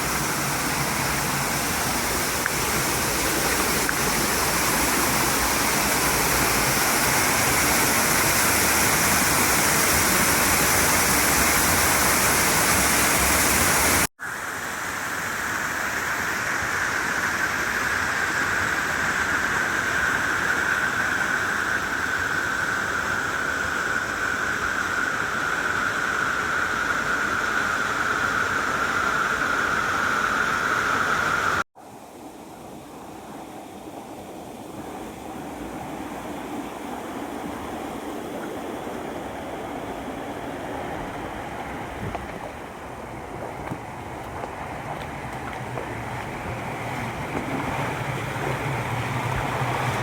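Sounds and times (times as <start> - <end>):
mountain stream rushing: 0.0 - 50.0
quieter lower water flow: 0.0 - 50.0.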